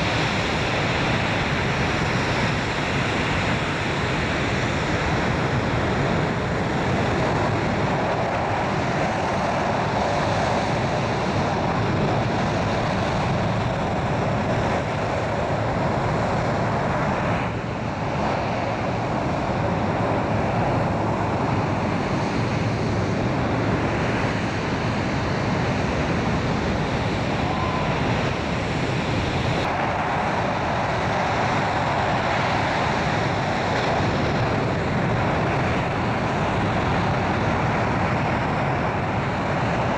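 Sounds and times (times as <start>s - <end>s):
jet engines rushing: 0.0s - 39.9s.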